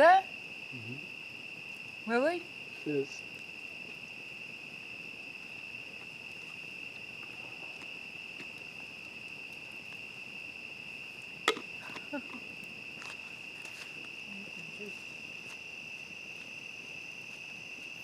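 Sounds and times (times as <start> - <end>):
campfire crackling: 0.0 - 18.0
crickets chirping: 0.0 - 18.0
sharp pop: 11.5 - 11.7.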